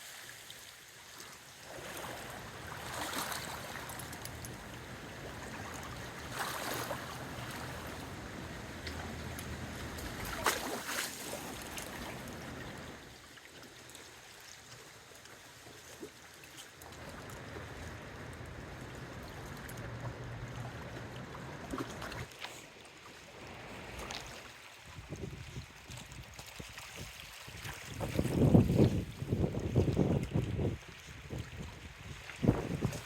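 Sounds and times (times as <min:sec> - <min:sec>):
gusty wind buffeting microphone: 0:27.9 - 0:33.0.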